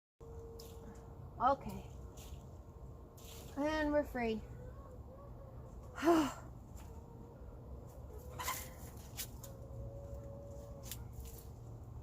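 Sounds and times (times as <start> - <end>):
chickens calling: 4.4 - 11.7.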